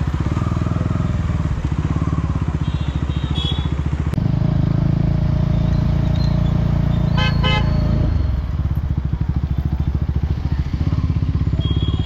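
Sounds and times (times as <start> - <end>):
motorcycle engine running: 0.0 - 12.0
vehicle horn tooting: 7.1 - 8.0, 11.6 - 12.0.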